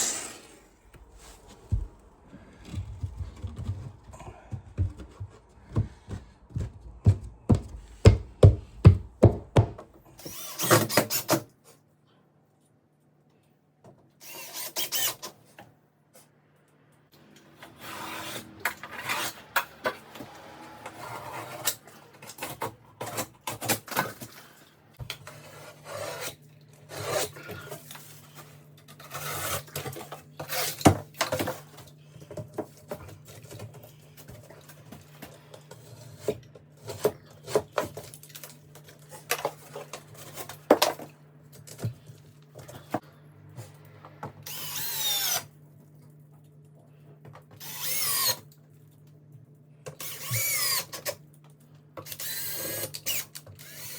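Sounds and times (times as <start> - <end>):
rasping and scraping strokes: 17.6 - 23.2.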